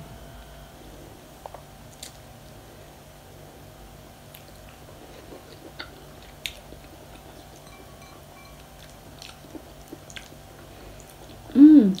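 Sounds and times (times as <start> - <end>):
chewing and biting: 8.6 - 11.4.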